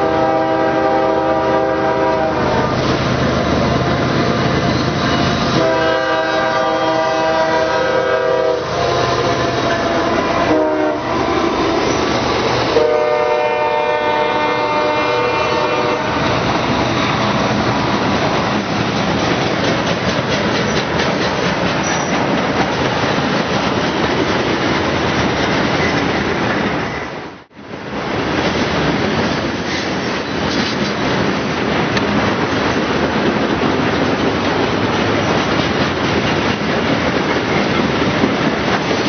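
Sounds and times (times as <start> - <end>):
train horn: 0.0 - 2.8, 5.5 - 12.1, 12.7 - 16.4
train rumbling over rails: 0.0 - 39.0.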